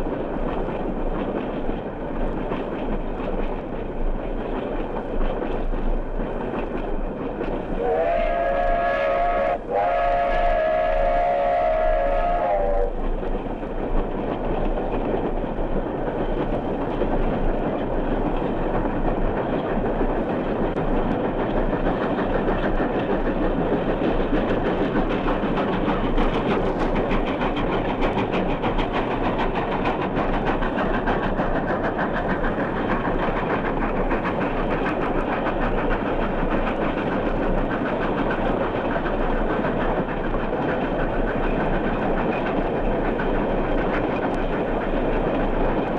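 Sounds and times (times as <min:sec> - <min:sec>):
train wheels clattering on rails: 0:00.0 - 0:45.9
steam locomotive whistle: 0:07.8 - 0:13.0.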